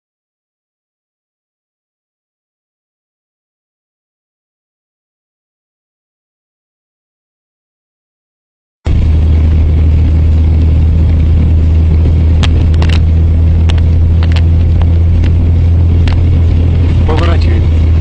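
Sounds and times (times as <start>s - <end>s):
car engine and road drone: 8.9s - 18.0s.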